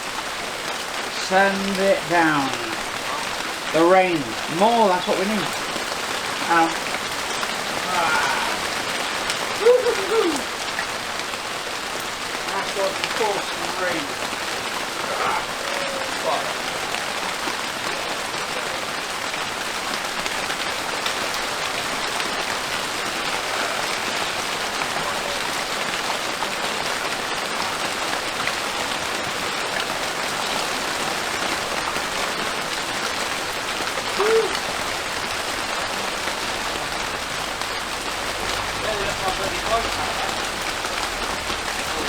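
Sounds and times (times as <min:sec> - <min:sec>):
steady rain falling: 0:00.0 - 0:42.0
short pitched call: 0:34.2 - 0:34.7.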